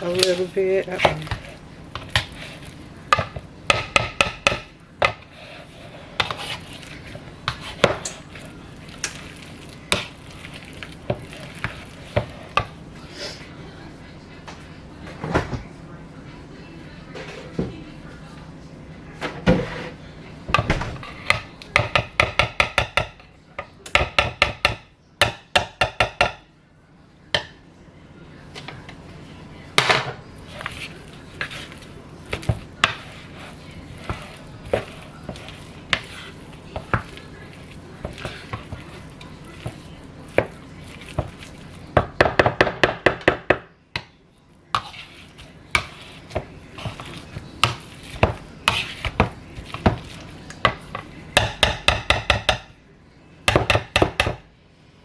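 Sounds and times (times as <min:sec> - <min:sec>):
potato masher knocking against pot: 0:45.8 - 0:52.7.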